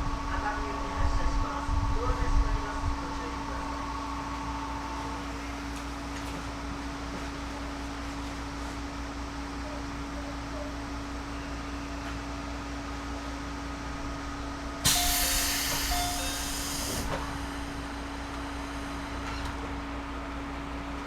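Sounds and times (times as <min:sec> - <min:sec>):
electric train humming: 0:12.9 - 0:21.0
compressed air hiss: 0:14.8 - 0:18.6.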